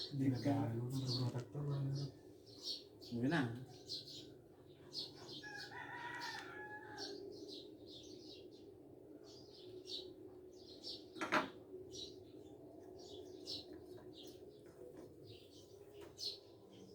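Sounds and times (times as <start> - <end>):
small birds chirping: 0.0 - 16.9
rooster crowing: 5.4 - 7.3.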